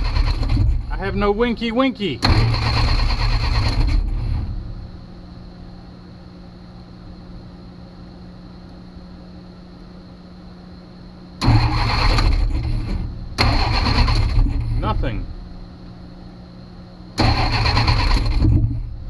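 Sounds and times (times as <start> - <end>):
starter cranking engine: 0.0 - 0.8, 2.2 - 4.0, 11.4 - 12.8, 13.4 - 14.7, 17.2 - 18.8
faint steady hum: 0.0 - 19.0.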